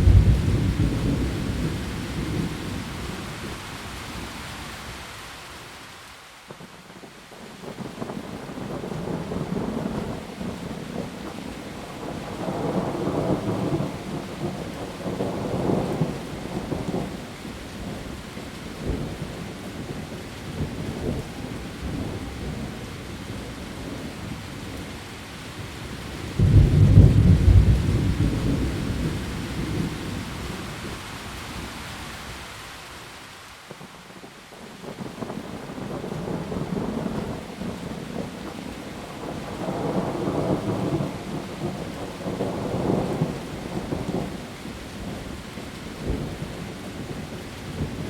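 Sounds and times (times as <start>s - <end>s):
loud thunder crack: 0.0s - 2.5s, 26.4s - 29.9s
thunder rumbling: 0.0s - 3.2s, 26.2s - 31.0s, 34.8s - 44.4s
heavy rain on leaves: 0.0s - 48.0s.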